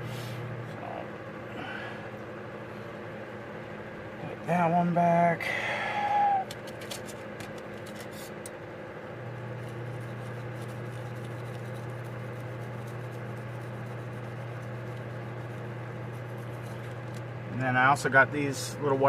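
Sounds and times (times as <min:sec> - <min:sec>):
steady low hum: 0:00.0 - 0:19.0
small parts clicking and scratching: 0:06.5 - 0:08.6, 0:09.6 - 0:17.3.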